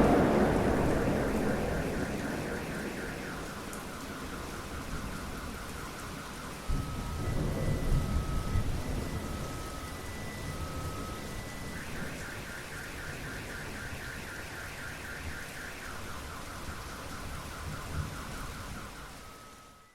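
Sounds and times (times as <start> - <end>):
thunder rumbling: 0.0 - 14.8
steady rain: 0.0 - 19.9.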